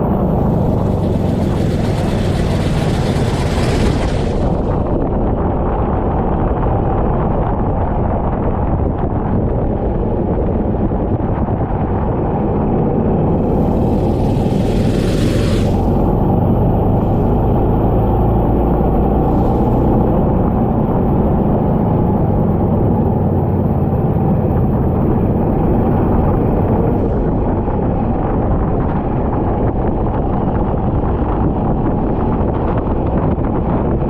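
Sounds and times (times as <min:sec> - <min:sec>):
go-kart engine running: 0:00.0 - 0:05.5, 0:12.8 - 0:33.8
wind noise on microphone: 0:00.0 - 0:34.0.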